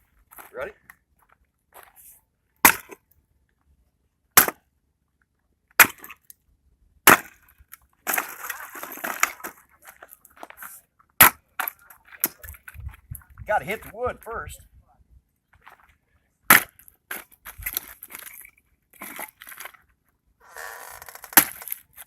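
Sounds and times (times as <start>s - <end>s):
axe chopping firewood: 2.6s - 3.0s, 4.4s - 4.7s, 5.8s - 6.2s, 7.0s - 7.5s, 11.2s - 12.5s, 16.5s - 18.2s, 21.3s - 21.8s
wood crackling as it splits: 7.1s - 10.4s, 20.5s - 22.0s.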